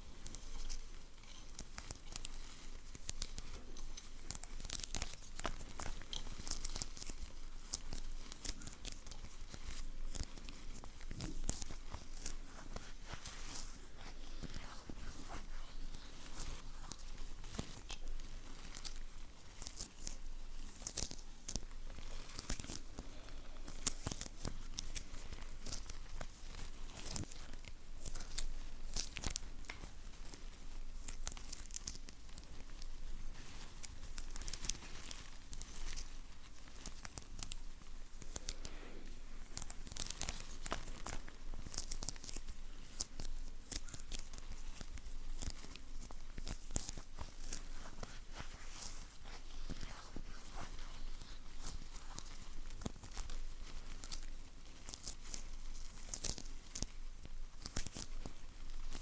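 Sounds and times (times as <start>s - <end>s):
rustling: 0.0s - 59.0s
sticky tape peeling crackle: 23.6s - 38.7s, 39.4s - 59.0s.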